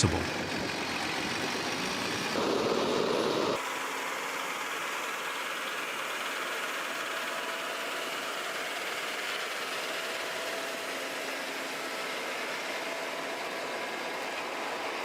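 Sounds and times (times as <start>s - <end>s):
heavy vehicle engine running: 0.0s - 3.6s.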